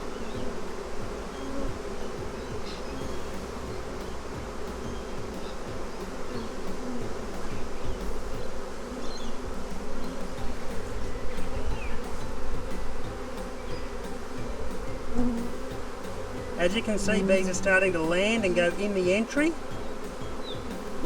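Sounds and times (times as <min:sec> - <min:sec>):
honeybees buzzing: 0:00.0 - 0:21.0.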